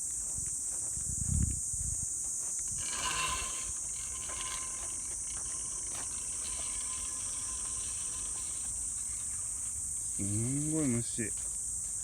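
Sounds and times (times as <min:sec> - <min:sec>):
insects shrilling: 0:02.4 - 0:11.8.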